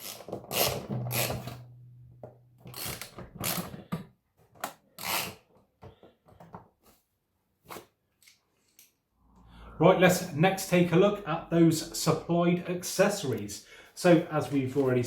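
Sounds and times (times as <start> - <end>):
low steady hum: 0.9 - 3.3.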